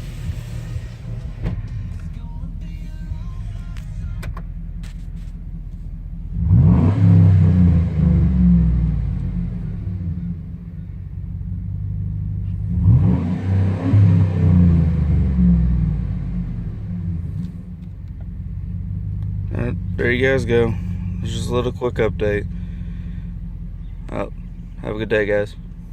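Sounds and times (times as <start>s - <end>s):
truck engine revving: 0.0s - 5.5s, 6.2s - 10.8s, 11.7s - 17.7s.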